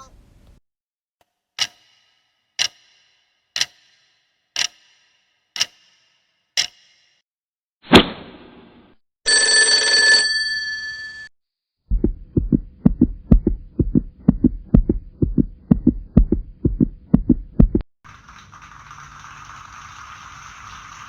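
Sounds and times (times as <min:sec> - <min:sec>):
bell-like ring: 0:09.3 - 0:11.3
heartbeat thumps: 0:11.9 - 0:17.8
clapping hiss: 0:18.1 - 0:21.0.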